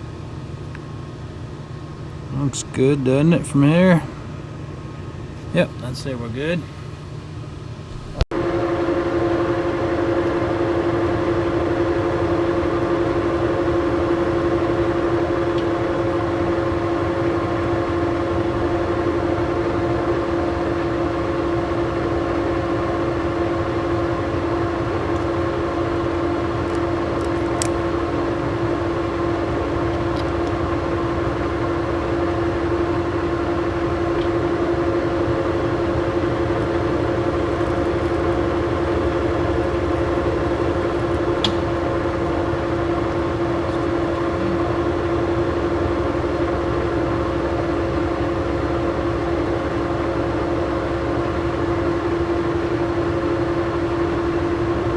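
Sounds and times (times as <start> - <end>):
lathe whining: 7.9 - 51.4.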